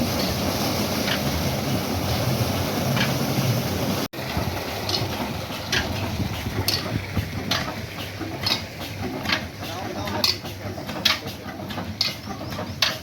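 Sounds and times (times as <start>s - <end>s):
oil engine running: 0.0s - 13.0s.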